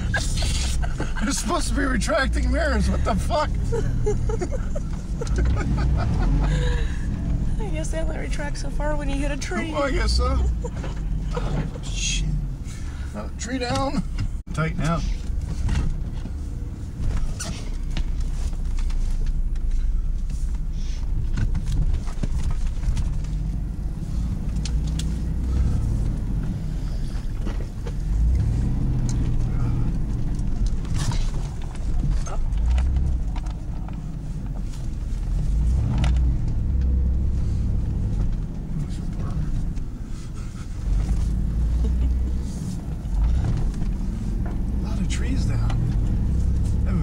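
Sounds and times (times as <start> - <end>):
vehicle engine revving: 0.0 - 19.6, 20.3 - 47.0
knocks and scrapes: 14.1 - 46.9.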